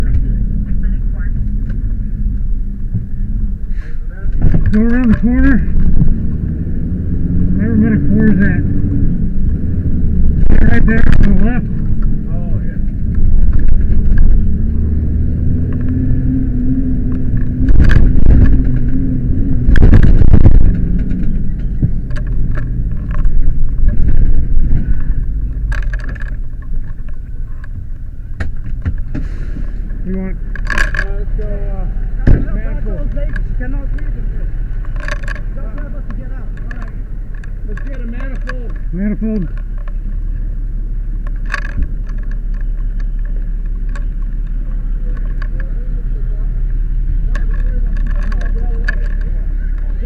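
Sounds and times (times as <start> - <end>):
diesel engine rumbling: 0.0 - 50.0
gear clanking and clicking: 0.0 - 50.0
knocks and rattles: 0.0 - 50.0
sharp thump: 4.4 - 6.3, 17.2 - 26.8, 28.4 - 31.2, 32.2 - 32.6.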